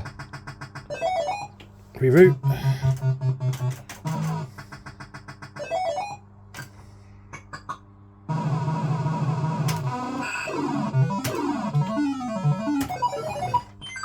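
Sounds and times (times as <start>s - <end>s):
buzzing electronic tune with beeps: 2.3s - 4.5s, 8.3s - 14.0s.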